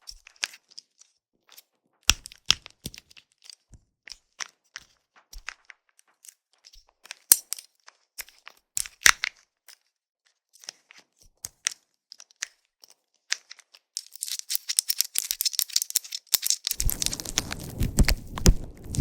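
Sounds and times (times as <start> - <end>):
plastic bracelet clicking and crackling: 2.1 - 9.8, 10.6 - 19.0
scratching on microphone: 16.7 - 19.0.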